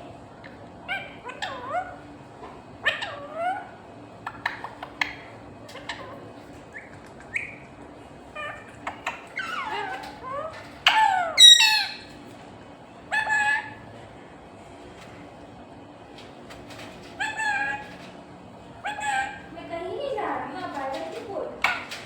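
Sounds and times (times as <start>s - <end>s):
parrot squawking harshly: 0.8s - 2.1s, 2.8s - 7.6s, 8.3s - 12.2s, 13.1s - 13.8s, 17.2s - 18.0s, 18.8s - 19.5s
parrot chirps and whistles: 6.7s - 7.7s, 8.4s - 12.1s, 13.1s - 13.8s, 17.2s - 17.9s, 18.8s - 19.5s.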